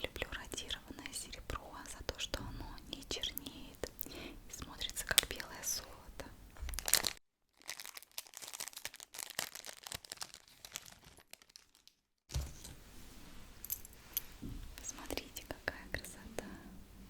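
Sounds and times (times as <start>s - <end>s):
packaging crinkling: 6.7s - 12.1s.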